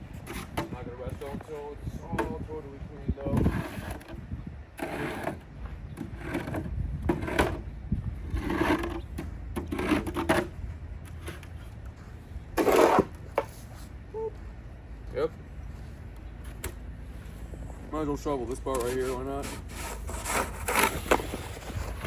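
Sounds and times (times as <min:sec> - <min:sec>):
snow shovel scraping: 0:12.6 - 0:13.7, 0:18.8 - 0:22.0.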